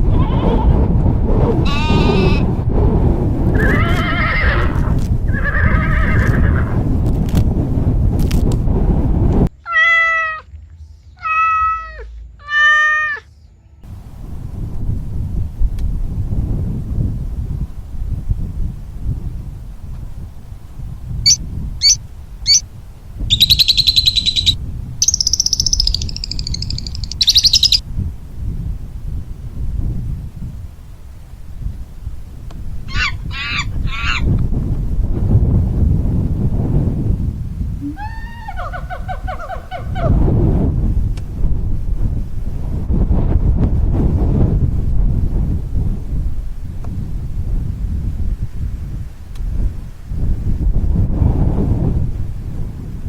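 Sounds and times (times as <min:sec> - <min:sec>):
farm animal calling: 0:01.6 - 0:02.5, 0:21.3 - 0:22.6, 0:23.3 - 0:27.8, 0:37.8 - 0:40.2
steady low rumble: 0:13.9 - 0:33.3
bird rattling trills: 0:21.3 - 0:22.6, 0:23.3 - 0:27.8
songbird chirps: 0:21.3 - 0:22.6, 0:23.3 - 0:27.8.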